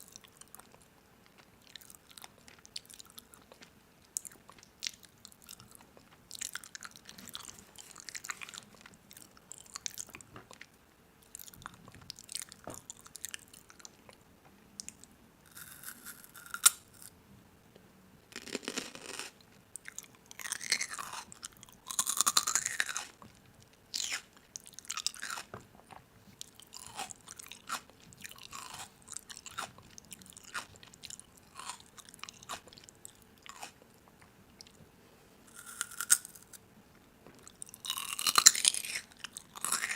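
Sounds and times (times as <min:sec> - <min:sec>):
crisp food crunching: 0:00.1 - 0:14.1, 0:18.4 - 0:33.9, 0:35.5 - 0:36.6, 0:37.4 - 0:39.9.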